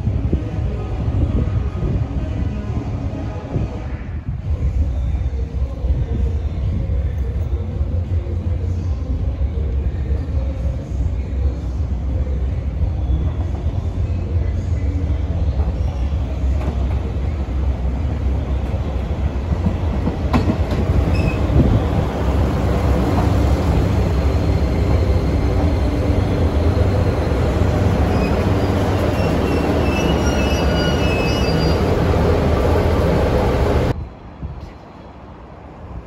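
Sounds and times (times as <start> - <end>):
railcar engine and wheels rumbling: 0.0 - 36.0
brakes squealing: 24.0 - 33.6.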